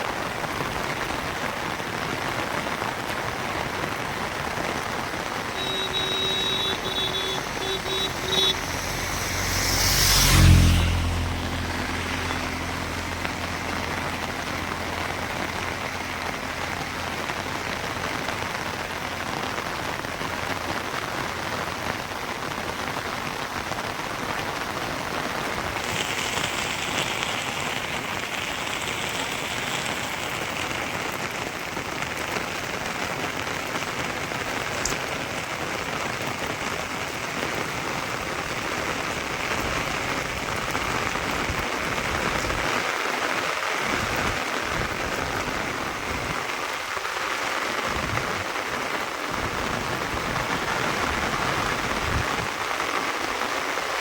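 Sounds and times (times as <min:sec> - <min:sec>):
steady rain falling: 0:00.0 - 0:54.0
short beeps: 0:05.6 - 0:09.2
vehicle passing: 0:05.6 - 0:18.6.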